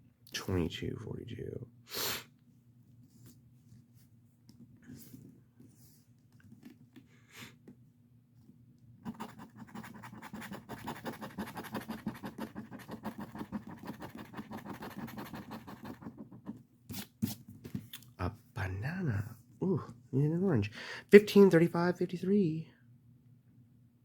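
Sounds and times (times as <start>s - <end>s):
scratching lottery ticket coating: 9.1s - 16.5s.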